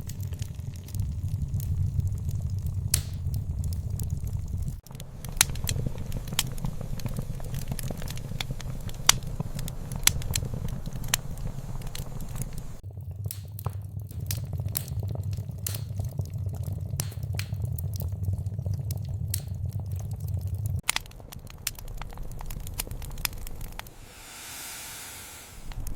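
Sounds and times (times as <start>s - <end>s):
low rumble of burning: 0.0s - 25.9s
wood fire crackling: 0.0s - 25.9s
faint hiss: 4.9s - 12.8s, 23.8s - 25.9s.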